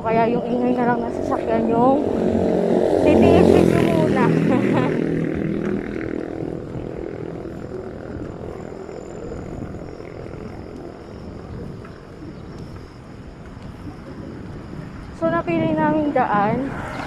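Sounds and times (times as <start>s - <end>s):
vehicle engine passing: 0.0s - 10.1s
traffic and road noise: 0.0s - 17.0s.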